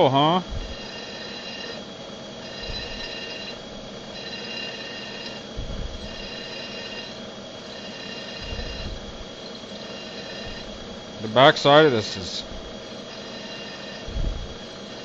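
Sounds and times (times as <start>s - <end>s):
high ringing cutting tone: 0.0s - 15.0s
milling machine drilling: 0.0s - 15.0s
low thumps: 5.5s - 6.2s, 8.4s - 9.4s, 14.0s - 14.6s.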